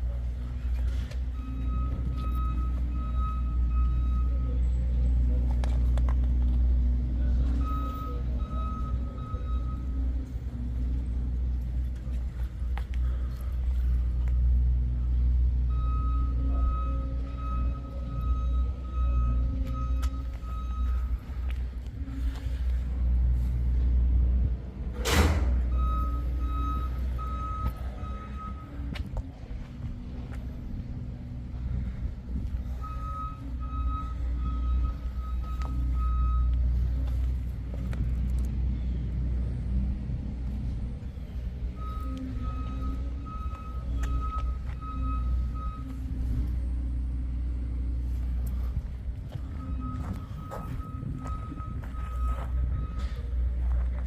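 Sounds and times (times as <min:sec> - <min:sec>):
engine idling with deep rumble: 0:00.0 - 0:54.0
short electronic beeps: 0:01.3 - 0:04.8, 0:07.4 - 0:10.0, 0:15.7 - 0:21.5, 0:25.7 - 0:28.8, 0:32.7 - 0:36.9, 0:41.7 - 0:46.3, 0:49.4 - 0:53.4.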